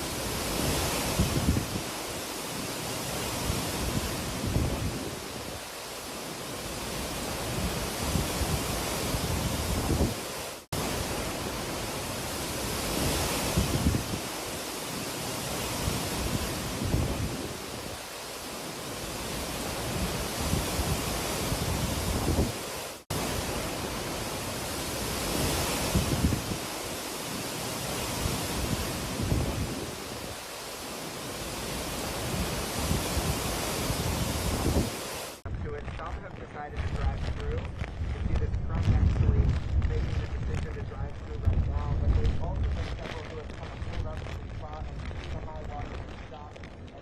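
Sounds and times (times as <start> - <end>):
strong wind buffeting microphone: 0.0 - 47.0.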